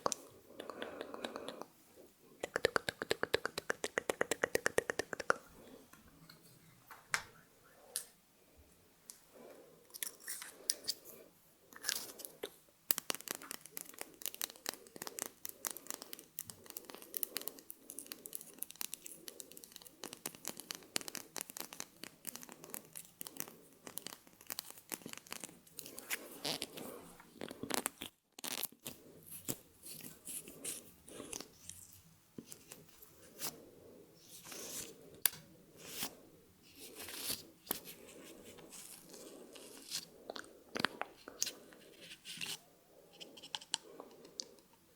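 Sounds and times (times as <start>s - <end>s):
wet mouth clicks: 0.0s - 1.7s.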